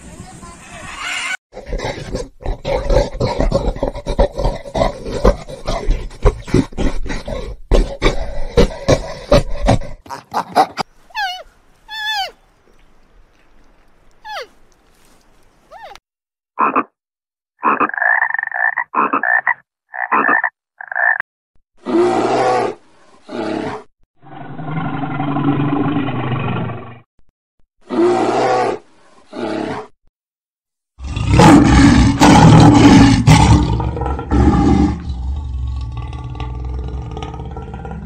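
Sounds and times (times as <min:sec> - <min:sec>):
bear growling: 0:01.6 - 0:11.5, 0:31.0 - 0:38.0
frog croaking: 0:16.6 - 0:16.9, 0:17.6 - 0:21.2
lion roaring: 0:31.0 - 0:38.0.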